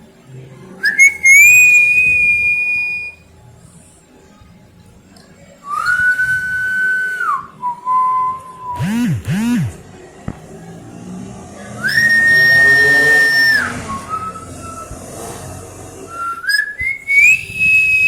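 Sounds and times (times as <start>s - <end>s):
long whistled notes: 11.8s - 15.0s, 16.1s - 18.0s.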